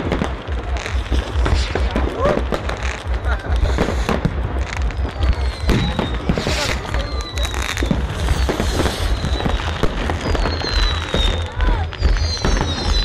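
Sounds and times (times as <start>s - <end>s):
descending firework whistle: 0.0s - 13.0s
fireworks bangs and crackles: 0.0s - 13.0s.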